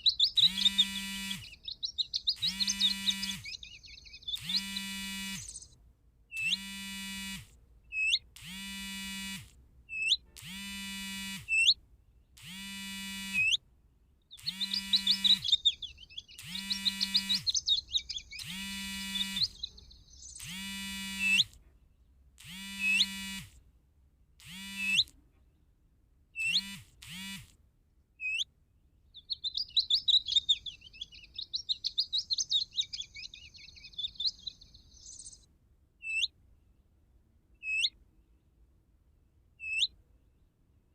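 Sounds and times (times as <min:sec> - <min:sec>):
rapid chattering twitter: 0:00.0 - 0:05.7, 0:14.3 - 0:21.5, 0:29.2 - 0:35.4
buzzy nasal bird call: 0:00.0 - 0:11.8, 0:12.4 - 0:13.6, 0:14.3 - 0:21.6, 0:22.4 - 0:23.6, 0:24.4 - 0:25.1, 0:26.4 - 0:27.5, 0:28.2 - 0:28.5, 0:29.2 - 0:36.3, 0:37.6 - 0:38.0, 0:39.6 - 0:40.0.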